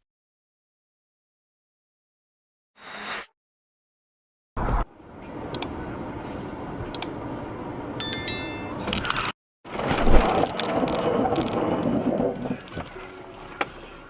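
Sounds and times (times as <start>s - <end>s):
road and traffic noise: 4.9s - 9.4s
high ringing tones: 8.0s - 8.9s.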